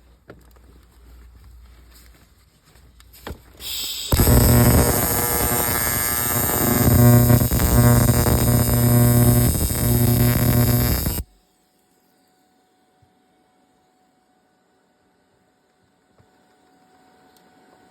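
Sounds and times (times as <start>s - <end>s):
arc welder crackling: 3.6s - 11.3s
electrical hum: 3.6s - 11.4s.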